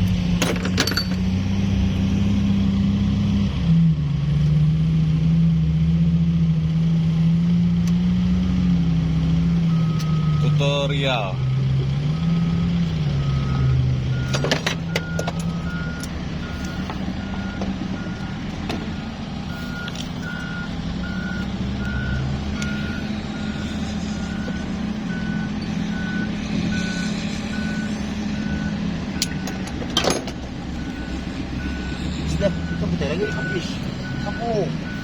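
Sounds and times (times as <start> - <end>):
heavy engine running: 0.0 - 35.0
reversing alarm beeping: 9.7 - 35.0.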